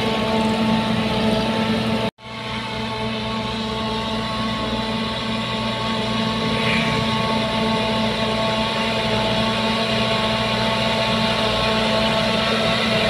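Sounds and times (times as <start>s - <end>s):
bulldozer diesel engine running: 3.4s - 13.0s.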